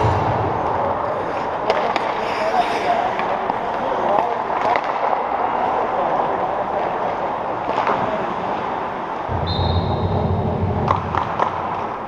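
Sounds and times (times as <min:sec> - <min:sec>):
noisy hum of ice rink: 0:00.0 - 0:12.0
low rumble: 0:09.3 - 0:11.4
sharp knocks: 0:09.3 - 0:11.8.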